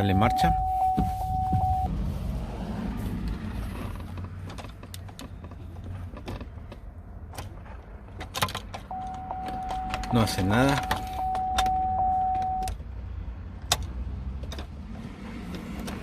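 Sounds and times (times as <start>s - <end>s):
car warning chime: 0.0s - 1.9s, 8.9s - 12.8s.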